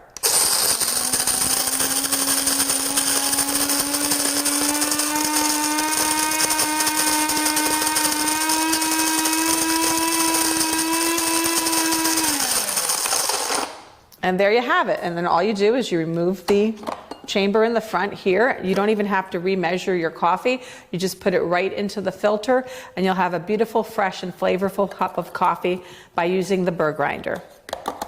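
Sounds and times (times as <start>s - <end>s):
coffee grinder grinding beans: 0.0s - 14.0s.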